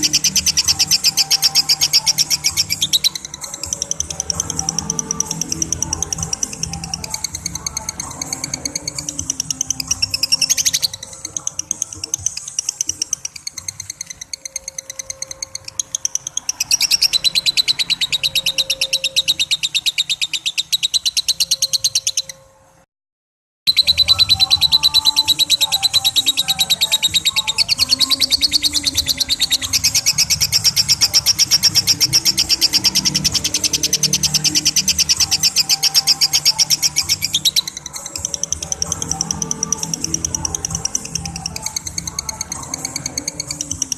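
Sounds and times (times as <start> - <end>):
lovebird shrill chatter: 23.7 - 43.9.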